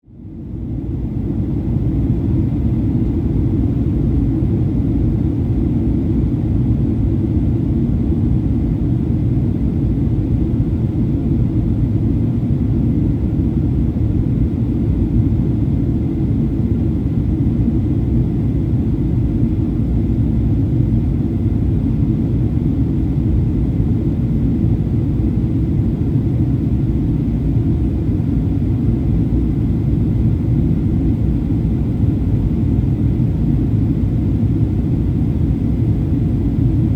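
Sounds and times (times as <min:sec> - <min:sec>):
airplane cabin rumble: 0:00.4 - 0:36.9.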